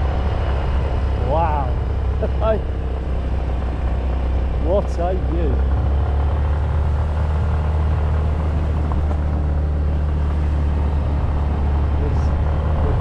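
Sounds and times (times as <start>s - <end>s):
moped engine running: 0.0s - 13.0s.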